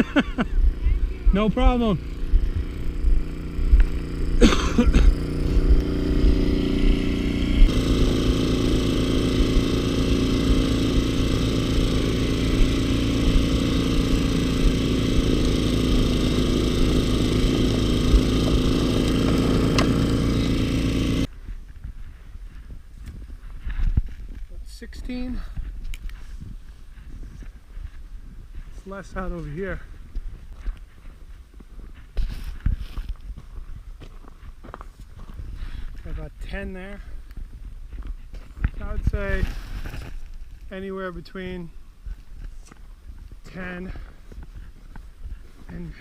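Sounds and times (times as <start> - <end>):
snowblower engine running: 0.0 - 21.3.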